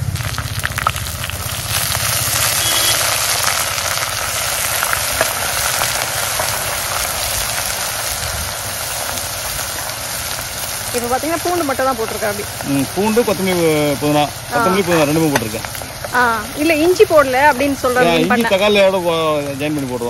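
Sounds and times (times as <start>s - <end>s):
garlic sizzling in a pot: 0.0s - 20.0s.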